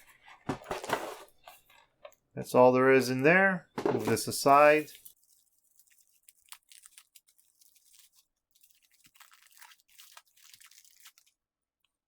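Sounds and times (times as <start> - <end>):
packaging crackling: 4.0 - 11.4.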